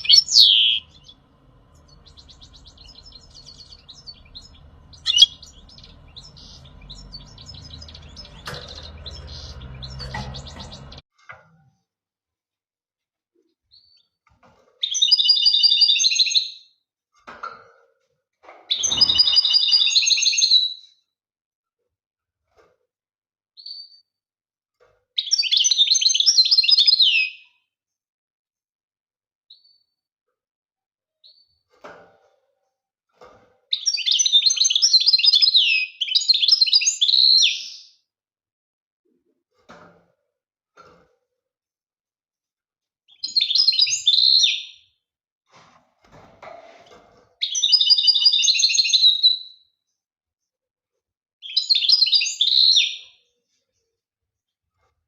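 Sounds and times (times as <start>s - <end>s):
faint bird calls: 0.0s - 11.0s
goldfinch singing: 0.0s - 11.0s.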